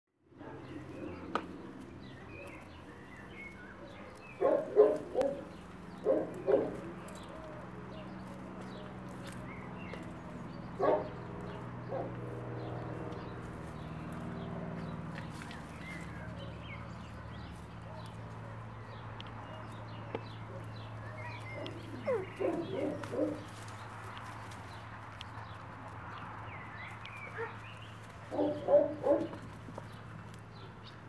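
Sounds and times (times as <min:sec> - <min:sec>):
dog barking: 0:03.8 - 0:06.9, 0:10.8 - 0:11.2, 0:11.9 - 0:12.2, 0:21.5 - 0:23.5, 0:27.3 - 0:27.6, 0:28.3 - 0:29.4.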